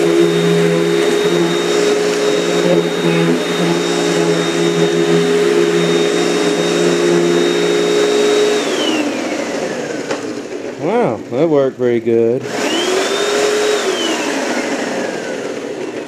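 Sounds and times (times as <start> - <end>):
vacuum cleaner humming: 0.0 - 16.0.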